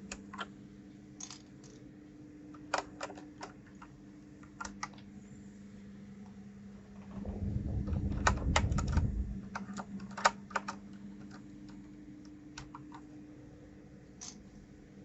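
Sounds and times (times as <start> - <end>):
low rumble: 6.8 - 10.0.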